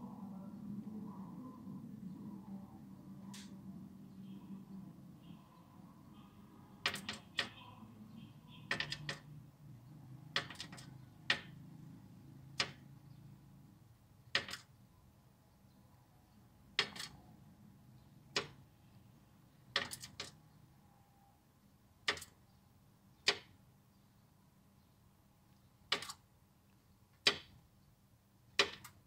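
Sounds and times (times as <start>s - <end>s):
bird tapping on window glass: 6.8s - 7.6s, 8.6s - 9.3s, 10.3s - 11.6s, 12.6s - 12.8s, 14.3s - 14.7s, 16.8s - 17.2s, 18.3s - 18.6s, 19.7s - 20.4s, 22.0s - 22.4s, 23.2s - 23.6s, 25.9s - 26.2s, 27.2s - 27.6s, 28.6s - 29.0s.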